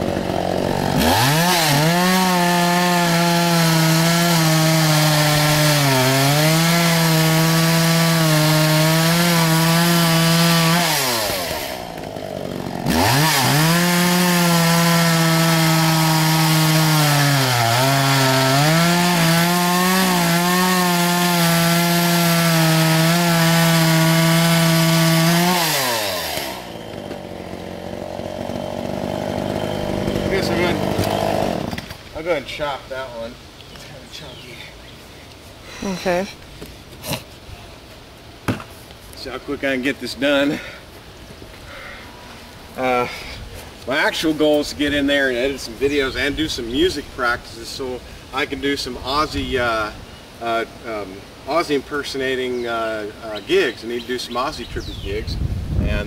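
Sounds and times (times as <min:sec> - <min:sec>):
chainsaw cutting wood: 0:00.0 - 0:32.3.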